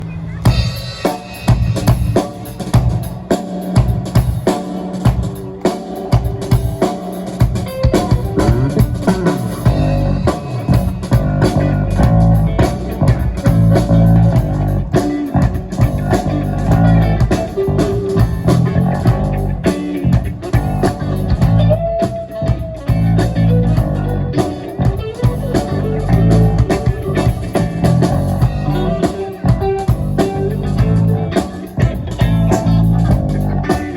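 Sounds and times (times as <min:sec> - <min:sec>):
bass guitar: 0:00.0 - 0:33.9
electric guitars: 0:00.0 - 0:33.9
drum kit beat: 0:00.5 - 0:33.9.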